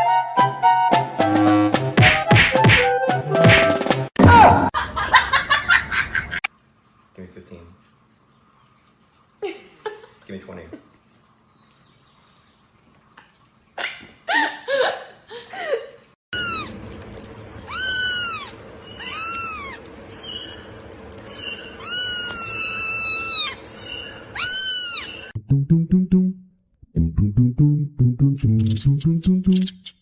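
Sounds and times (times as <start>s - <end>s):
steady background hum: 14.2s - 25.4s
cat meowing: 16.4s - 16.8s, 17.6s - 19.9s, 21.4s - 25.3s.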